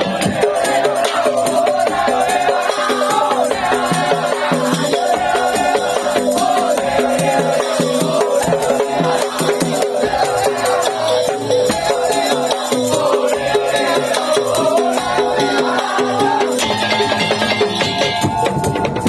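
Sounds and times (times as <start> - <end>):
percussion ensemble: 0.0 - 19.0
wavering high melody: 16.3 - 19.0.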